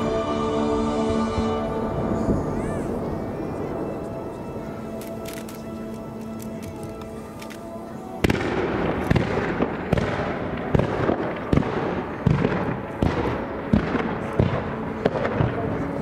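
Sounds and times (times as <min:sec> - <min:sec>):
continuous hiss: 0:00.0 - 0:16.0
fireworks exploding: 0:08.0 - 0:16.0.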